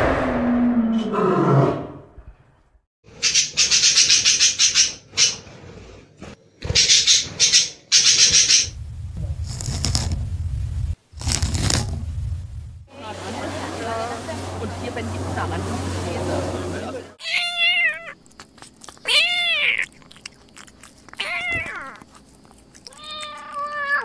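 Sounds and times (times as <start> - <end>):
low rumble: 0.0 - 2.8, 8.6 - 16.9.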